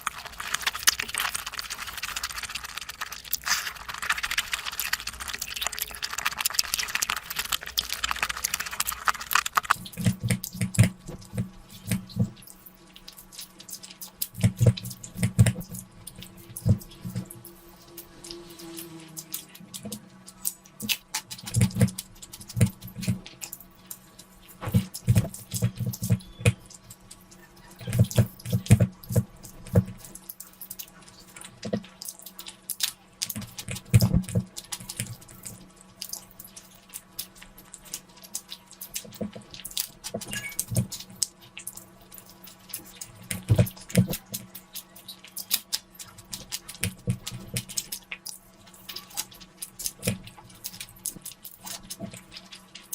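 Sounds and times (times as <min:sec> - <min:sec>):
person chewing wetly: 0:00.0 - 0:52.9.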